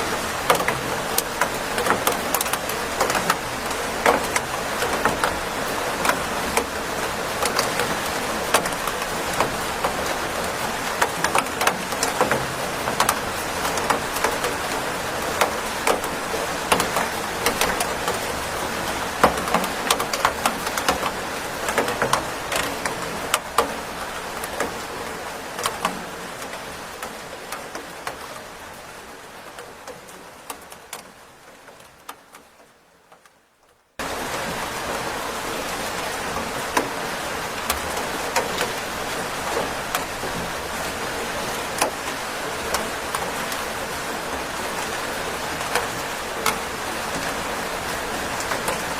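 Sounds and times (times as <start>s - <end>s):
sharp raindrop impacts: 0.0s - 28.6s
rain falling: 0.0s - 48.9s.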